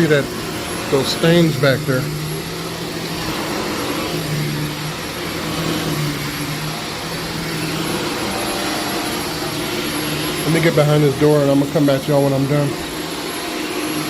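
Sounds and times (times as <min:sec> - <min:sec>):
vacuum motor droning: 0:00.0 - 0:14.0.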